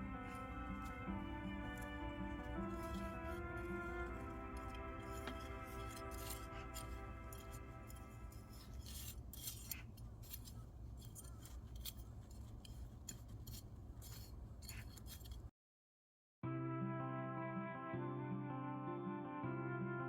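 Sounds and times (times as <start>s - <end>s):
music: 0.0s - 8.8s, 16.4s - 20.0s
wood fire crackling in stove: 0.0s - 15.5s.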